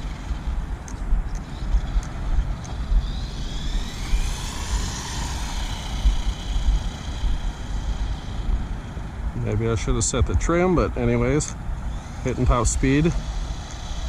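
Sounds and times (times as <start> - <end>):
rc truck electric motor whine: 0.0 - 9.4, 11.8 - 14.0
heavy low rumble: 0.0 - 13.7.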